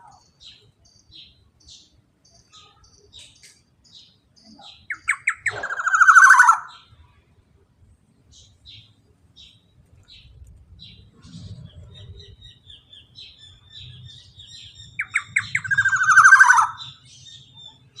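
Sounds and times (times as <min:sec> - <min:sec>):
bird singing high chirps: 0:00.0 - 0:07.0, 0:08.3 - 0:18.0
bird fast trill: 0:04.9 - 0:06.9, 0:11.3 - 0:17.8.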